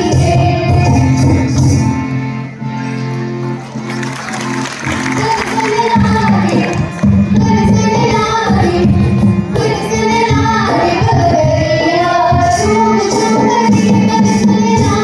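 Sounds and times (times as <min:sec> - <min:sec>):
instrumental accompaniment: 0:00.0 - 0:15.0
girls singing folk song: 0:05.1 - 0:15.0.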